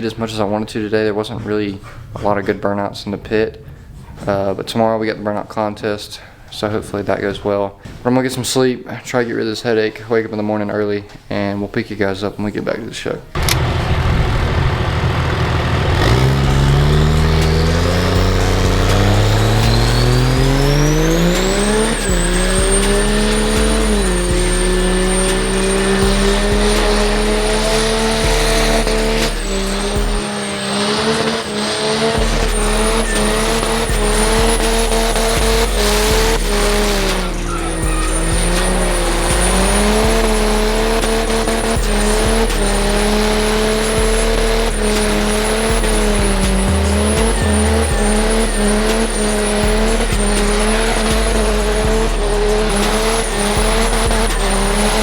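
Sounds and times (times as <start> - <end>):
tyres squealing: 12.6 - 55.0
diesel truck engine revving: 13.3 - 55.0.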